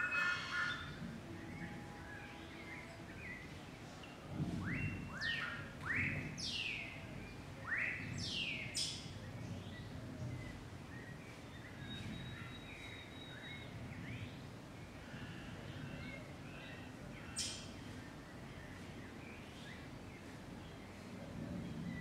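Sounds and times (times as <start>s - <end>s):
birds whistling and calling: 0.0s - 2.4s, 4.6s - 6.9s, 10.4s - 14.2s.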